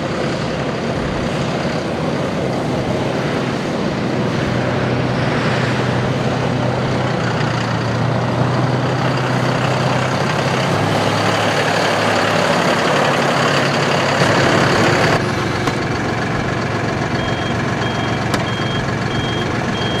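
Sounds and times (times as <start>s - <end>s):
diesel tractor engine running: 0.0s - 20.0s
short high beeps: 17.2s - 20.0s.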